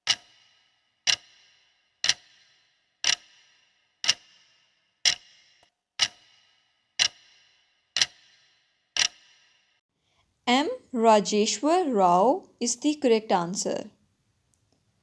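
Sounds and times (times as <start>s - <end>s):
clock ticking: 0.0s - 3.4s, 4.0s - 4.4s, 6.0s - 6.4s, 7.0s - 7.3s, 8.0s - 8.3s.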